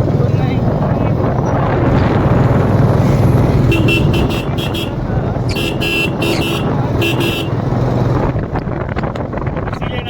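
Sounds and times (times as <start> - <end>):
motorcycle engine droning: 0.0 - 9.6
vehicle horn tooting: 3.6 - 7.7.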